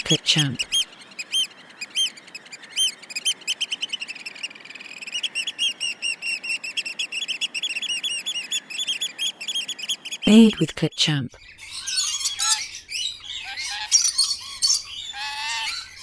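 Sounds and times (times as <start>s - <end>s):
small bird chirping: 0.0s - 16.0s.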